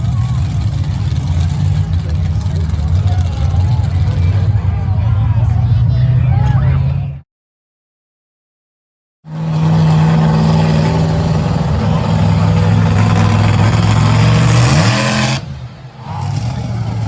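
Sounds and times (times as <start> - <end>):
monster truck engine at high revs: 0.0 - 7.2, 9.3 - 17.0.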